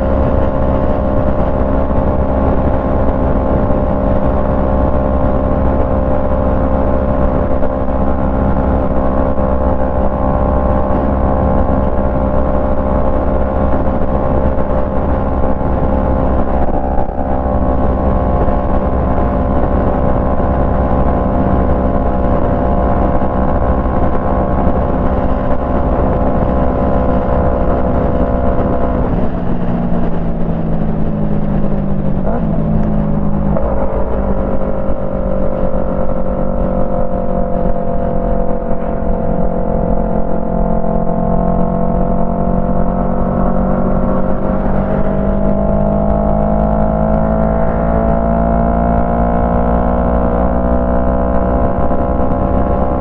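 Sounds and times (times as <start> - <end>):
motorcycle engine riding: 0.0 - 53.0
wind rumble: 0.0 - 53.0.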